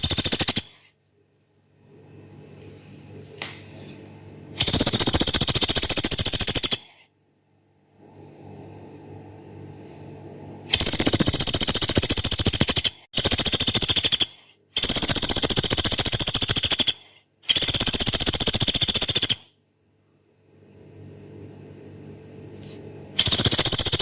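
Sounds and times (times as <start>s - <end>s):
woodpecker rattling trills: 0.0s - 0.8s, 4.6s - 6.9s, 10.8s - 19.4s, 23.2s - 24.0s.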